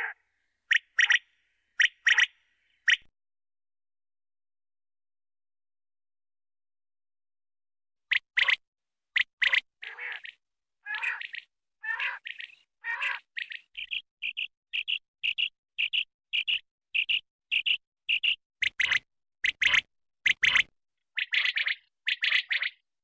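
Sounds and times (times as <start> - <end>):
quail calling: 0.0 - 3.1, 9.2 - 16.6, 17.6 - 22.8.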